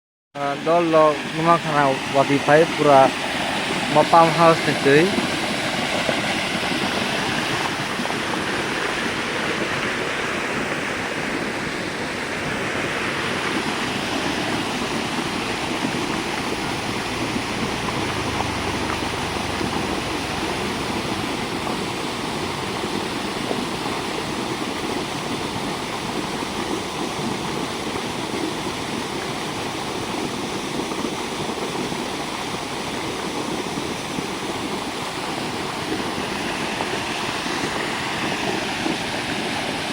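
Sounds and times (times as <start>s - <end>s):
floodwater rushing: 0.4s - 39.9s.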